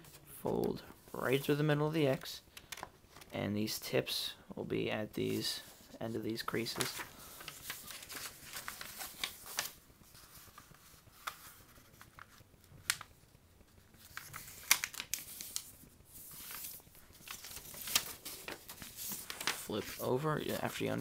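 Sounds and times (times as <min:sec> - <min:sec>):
paper being folded and creased: 0:05.3 - 0:21.0.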